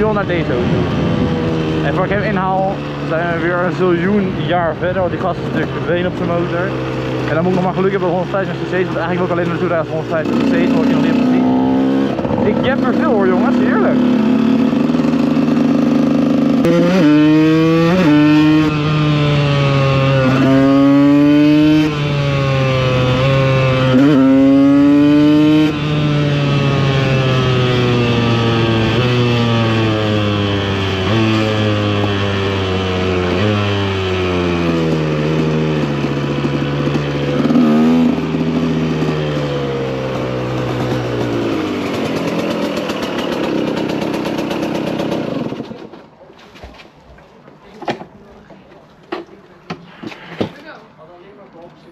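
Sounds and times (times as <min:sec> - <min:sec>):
two-stroke motorcycle accelerating: 0:00.0 - 0:46.8.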